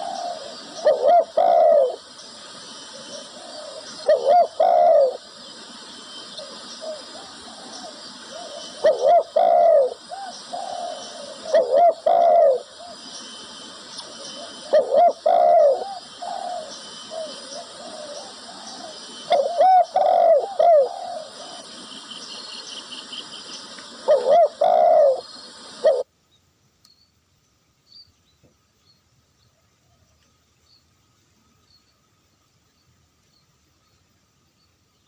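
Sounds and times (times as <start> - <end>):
dove cooing: 0.0 - 5.5, 6.2 - 22.1, 23.9 - 26.1
steady high hiss: 0.0 - 35.0.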